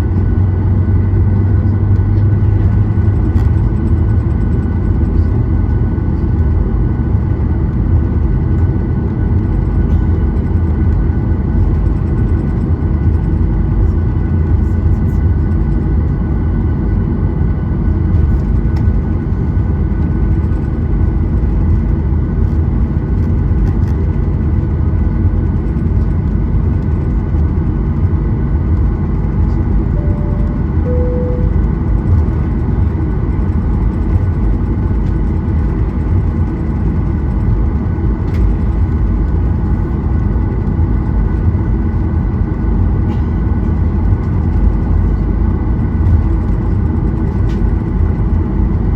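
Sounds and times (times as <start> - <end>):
airplane cabin engine rumble: 0.0 - 48.9
two-note falling chime: 30.0 - 32.1.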